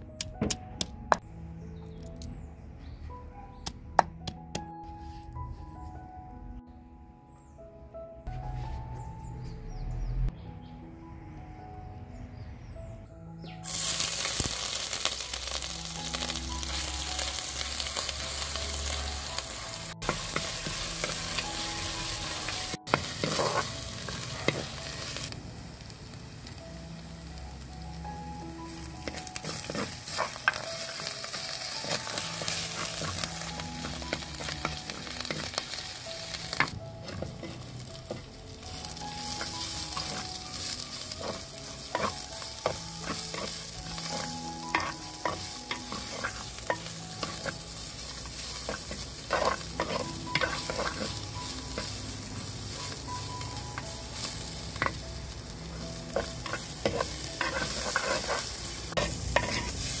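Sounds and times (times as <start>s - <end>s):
food sizzling in oil: 13.6s - 60.0s
wooden spoon scraping pot: 56.2s - 59.8s.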